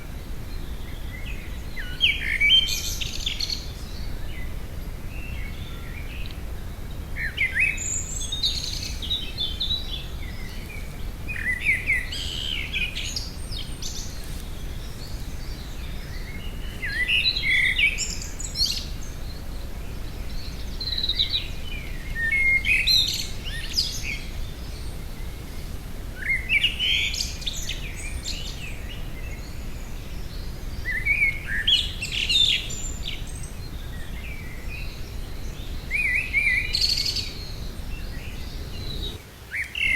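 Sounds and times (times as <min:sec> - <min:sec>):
songbird twittering: 0:26.2 - 0:39.9.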